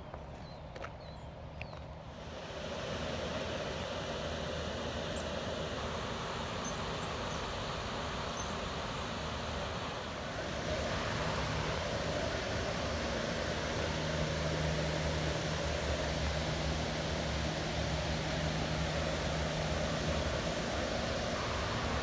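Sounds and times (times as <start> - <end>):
river water rushing: 9.1 - 22.0.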